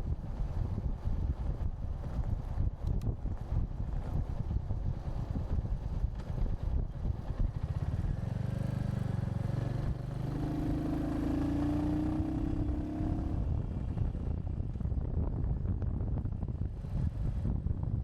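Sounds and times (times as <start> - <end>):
wind buffeting microphone: 0.0 - 18.0
motorcycle engine: 7.0 - 14.8.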